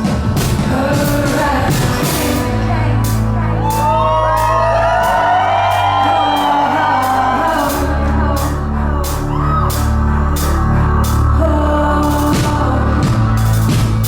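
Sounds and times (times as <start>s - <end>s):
drum beat: 0.0s - 2.7s, 12.1s - 14.0s
bass notes: 0.0s - 14.0s
woman singing lead vocal: 0.0s - 14.0s.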